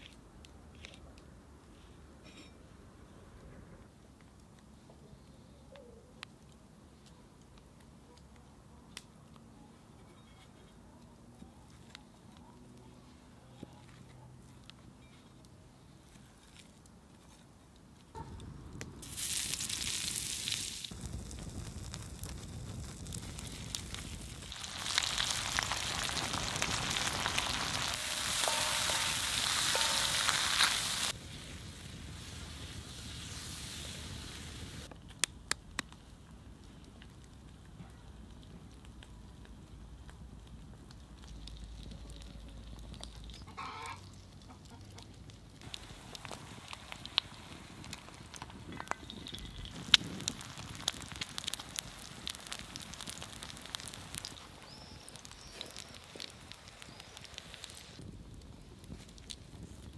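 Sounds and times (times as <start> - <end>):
food sizzling on a griddle: 19.0 - 34.9, 45.6 - 58.1
egg shell cracking: 46.1 - 55.9.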